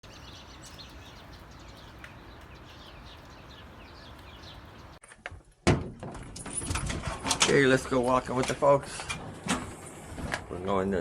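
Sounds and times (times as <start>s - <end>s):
small birds chirping: 0.0s - 5.0s.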